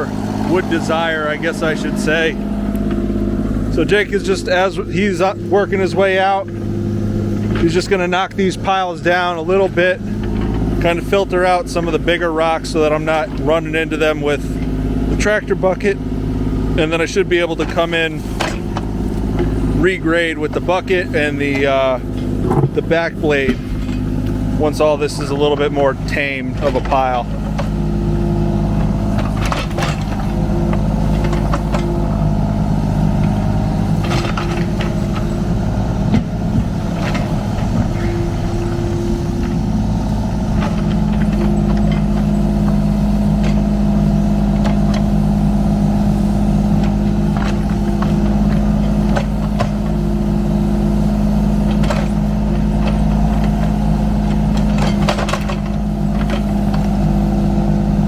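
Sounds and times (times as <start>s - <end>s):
excavator diesel engine running: 0.0s - 58.0s
bucket knocking dirt and rocks: 20.4s - 57.6s.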